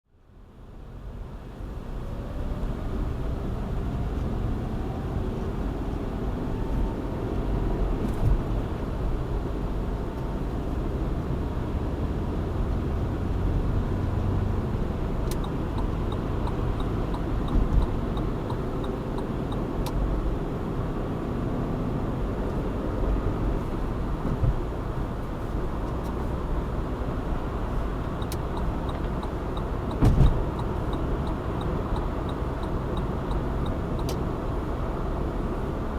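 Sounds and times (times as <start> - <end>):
car engine and tyre noise: 0.1 - 35.9
thump: 24.2 - 24.6, 30.0 - 30.4.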